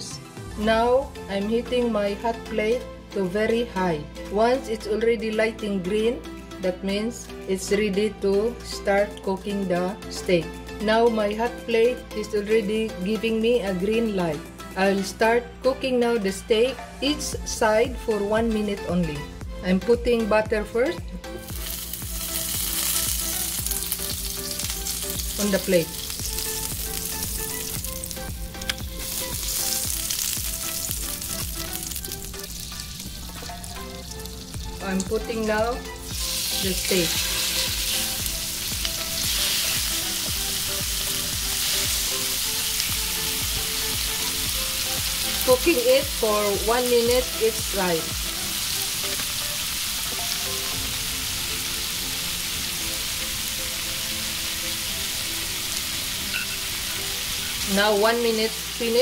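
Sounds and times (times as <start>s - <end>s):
soft background music: 0.0s - 59.0s
butter sizzling on a hot plate: 21.4s - 35.0s, 36.0s - 59.0s.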